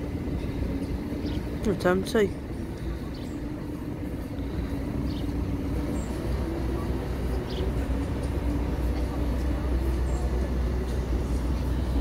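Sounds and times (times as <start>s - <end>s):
droning engine hum: 0.0s - 12.0s
train wagons rumbling: 0.0s - 12.0s.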